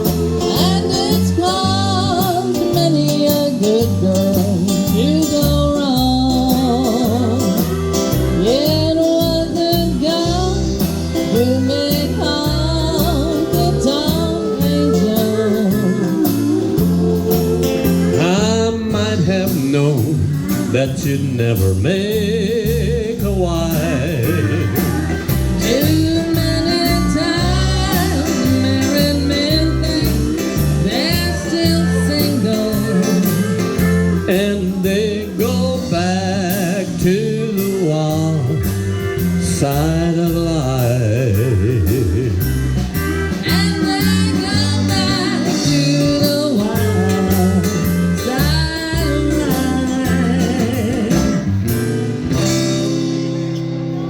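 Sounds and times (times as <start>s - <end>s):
live country band playing: 0.0s - 54.0s
sliding guitar lead: 0.0s - 54.0s.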